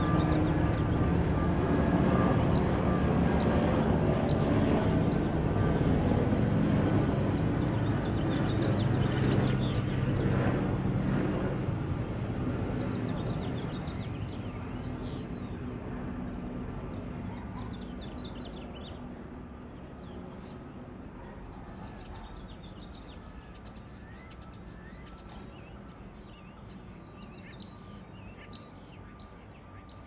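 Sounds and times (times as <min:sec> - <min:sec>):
small birds chirping: 0:00.0 - 0:03.6, 0:04.2 - 0:05.5, 0:22.0 - 0:30.0
passing engine drone: 0:00.0 - 0:13.4.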